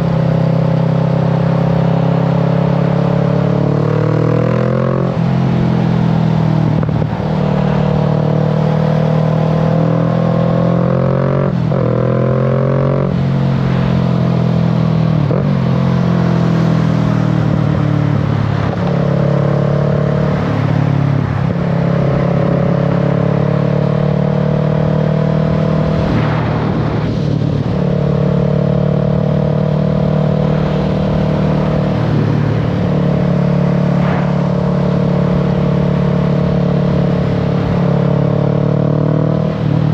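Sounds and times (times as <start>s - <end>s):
motorcycle engine and exhaust: 0.0s - 39.9s
wind noise: 3.0s - 10.6s, 25.4s - 38.4s.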